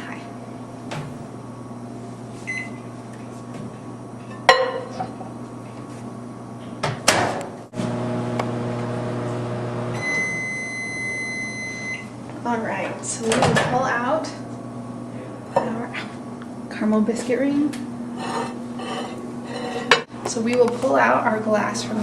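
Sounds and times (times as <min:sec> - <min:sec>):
microwave oven humming: 0:00.0 - 0:20.6
microwave door clunks: 0:00.9 - 0:01.9
microwave keypad beep: 0:02.5 - 0:02.8.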